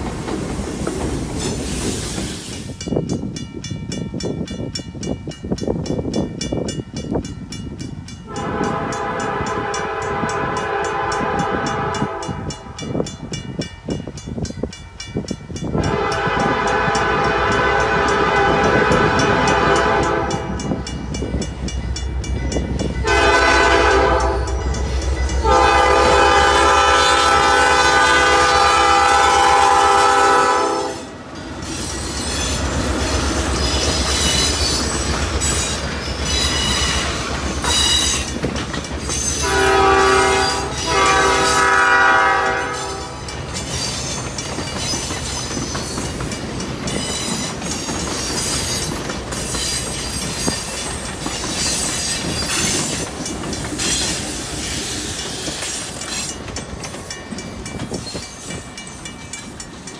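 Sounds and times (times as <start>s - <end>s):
train rumbling past: 0.0s - 59.9s
locomotive horn blasts: 8.3s - 12.8s, 15.8s - 20.8s, 23.0s - 24.7s, 25.4s - 31.2s, 39.4s - 43.3s
wheels clattering over rails: 32.3s - 39.4s.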